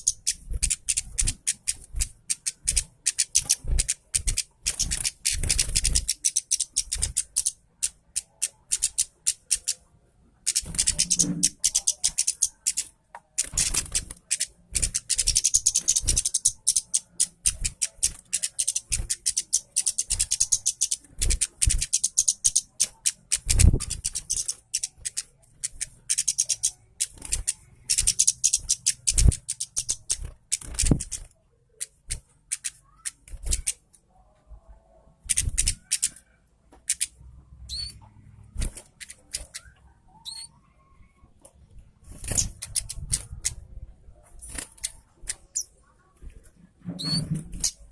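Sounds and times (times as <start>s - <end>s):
thrush singing chattering song: 0.0s - 31.2s.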